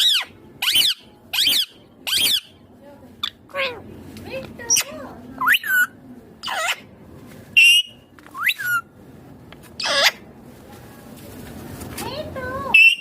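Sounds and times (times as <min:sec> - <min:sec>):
parakeet whistled calls: 0:00.0 - 0:02.6, 0:05.4 - 0:06.8, 0:07.6 - 0:08.9, 0:09.8 - 0:10.2, 0:12.7 - 0:13.0.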